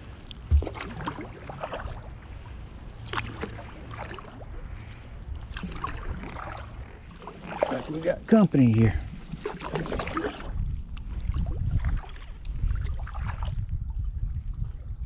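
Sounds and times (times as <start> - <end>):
kayak paddle strokes in water: 0.0 - 14.8
water drips and splashes: 0.0 - 15.0
low thump: 0.5 - 0.9.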